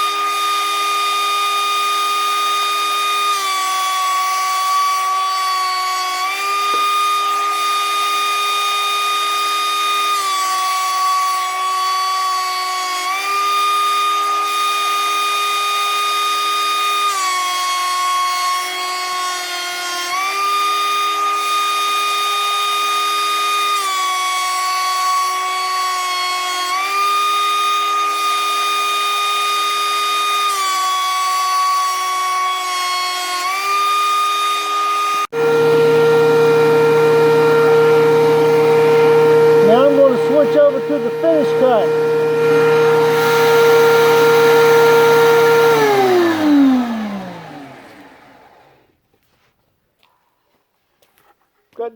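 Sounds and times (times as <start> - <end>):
thickness planer planing wood: 0.0 - 48.9.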